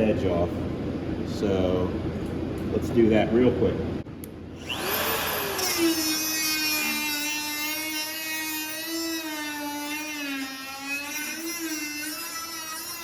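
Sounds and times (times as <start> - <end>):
grinder cutting sheet metal: 4.6 - 13.0.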